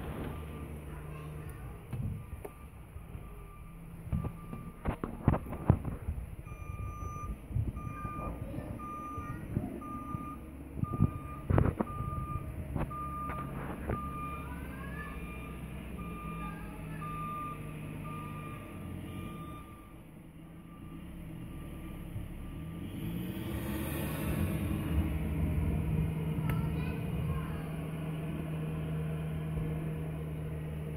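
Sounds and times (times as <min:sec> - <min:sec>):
diesel engine low rumble: 0:00.0 - 0:30.9
reversing alarm beeping: 0:02.1 - 0:05.8, 0:06.4 - 0:24.4.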